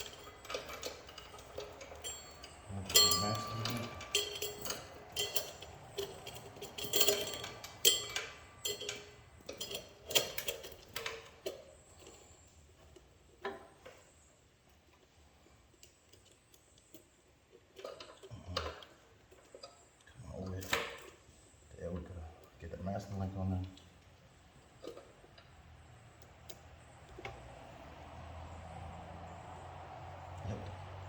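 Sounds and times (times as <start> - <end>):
metal chain clinking: 0.0 - 12.4.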